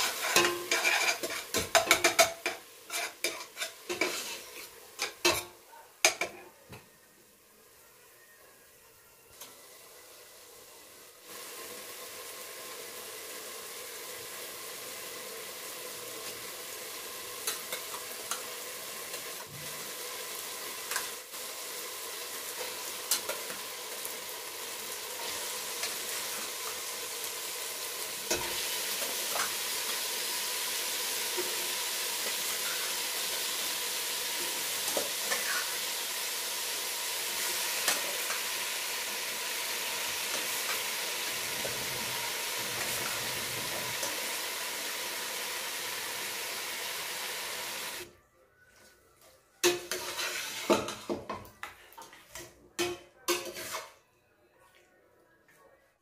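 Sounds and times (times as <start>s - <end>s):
spatula scraping a pot: 0.0s - 4.8s, 49.7s - 51.1s, 53.3s - 54.0s
chicken sizzling in a pot: 0.0s - 48.2s, 49.6s - 54.0s.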